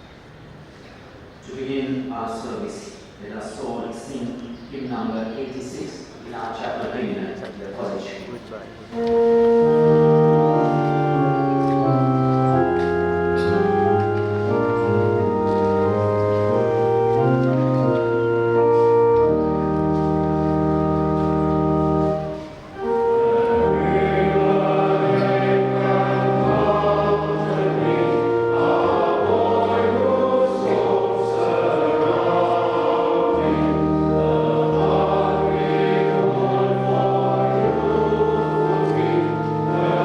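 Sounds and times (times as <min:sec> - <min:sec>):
congregation singing a hymn: 0:08.9 - 0:40.0
organ playing held chords: 0:08.9 - 0:40.0.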